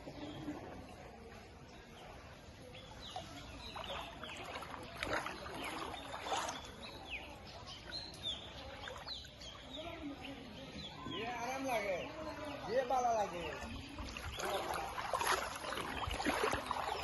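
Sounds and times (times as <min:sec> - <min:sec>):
birds chirping: 0:00.0 - 0:17.0
rushing splashy noises: 0:03.2 - 0:07.1, 0:12.2 - 0:17.0.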